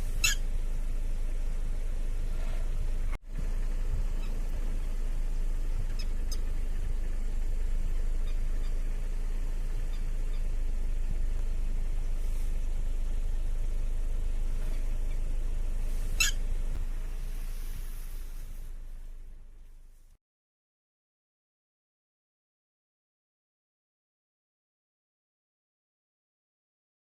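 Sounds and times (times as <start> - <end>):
steady low rumble: 0.0 - 20.2.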